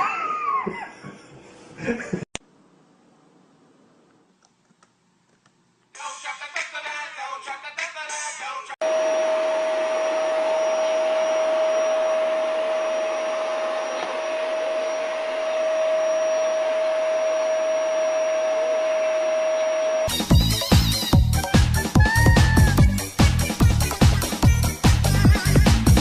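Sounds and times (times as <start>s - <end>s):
appliance electric motor whine: 8.8s - 20.2s.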